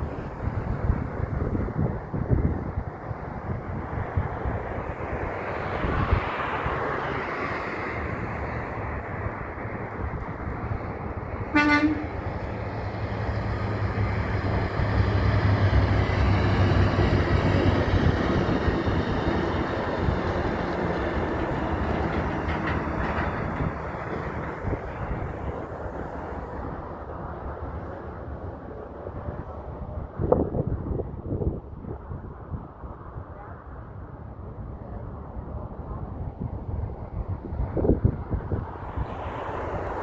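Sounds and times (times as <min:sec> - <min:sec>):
heavy trucks rumbling past: 0:00.0 - 0:29.6, 0:35.5 - 0:40.0
air horn toot: 0:11.5 - 0:12.2.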